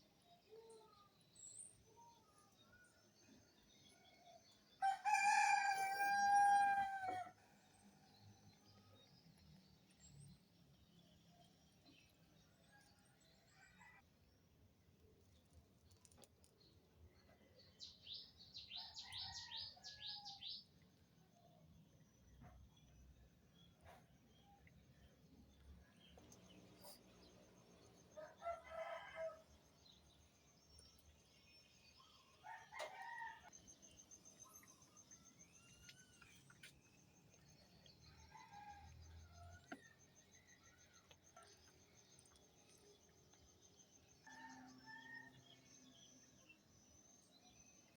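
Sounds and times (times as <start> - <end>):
distant fowl crowing: 4.8 - 7.4
songbird chirping: 15.2 - 21.5, 22.2 - 48.0.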